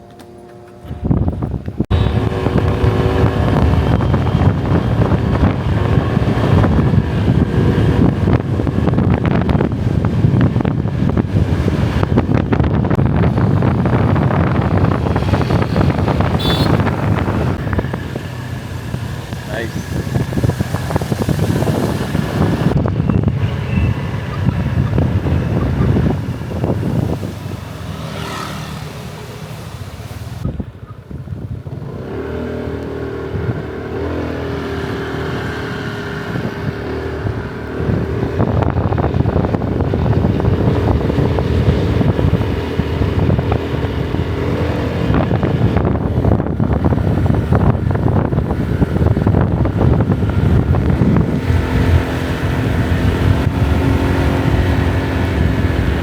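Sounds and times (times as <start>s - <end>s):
wind buffeting microphone: 0.0s - 56.0s
motorbike engine running: 0.3s - 29.6s.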